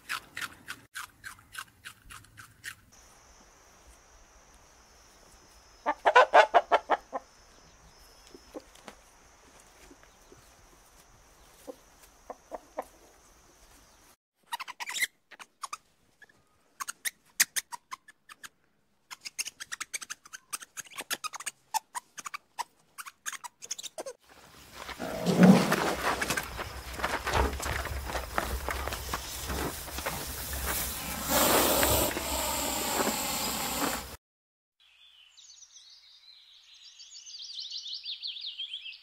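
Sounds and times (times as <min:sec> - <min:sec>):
rhinoceros chewing vegetables: 0:00.0 - 0:02.8, 0:24.8 - 0:34.1.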